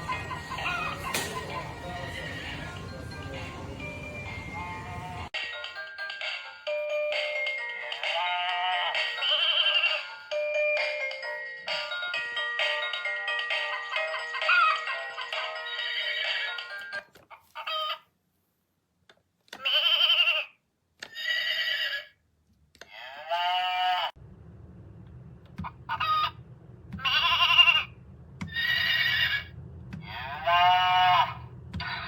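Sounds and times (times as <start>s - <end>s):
toy playing farm animal calls: 0.0s - 3.2s, 7.9s - 10.9s, 13.4s - 18.1s, 27.0s - 27.9s, 30.0s - 32.0s.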